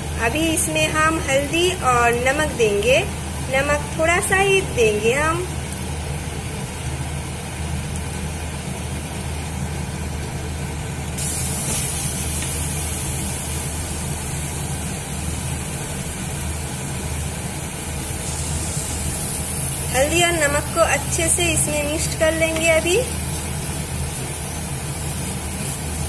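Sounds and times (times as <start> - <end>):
low kitchen hum: 0.0 - 26.0
masala sizzling in a pan: 0.0 - 26.0.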